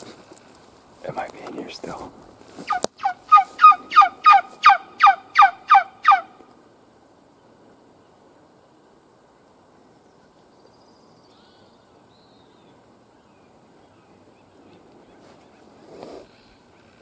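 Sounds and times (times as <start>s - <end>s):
faint hiss: 0.0s - 17.0s
distant bird calls: 2.6s - 6.5s, 9.8s - 17.0s.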